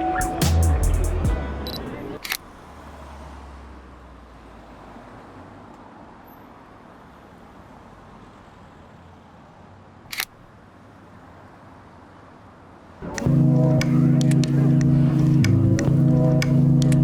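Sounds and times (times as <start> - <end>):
camera shutter click: 10.1 - 10.4.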